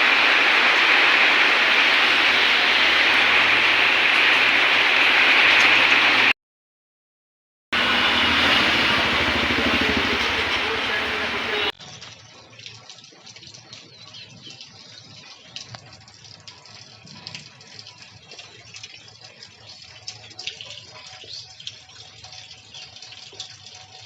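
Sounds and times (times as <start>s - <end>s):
water drops spattering: 0.0s - 6.3s
rain falling: 0.0s - 6.4s, 7.8s - 11.7s
water running: 0.0s - 6.4s, 7.8s - 11.7s.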